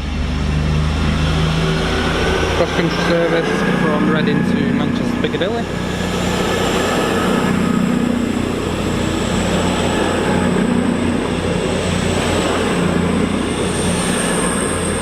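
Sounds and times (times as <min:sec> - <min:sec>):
thin high whine: 0:00.0 - 0:15.0
train diesel engines droning: 0:00.0 - 0:15.0.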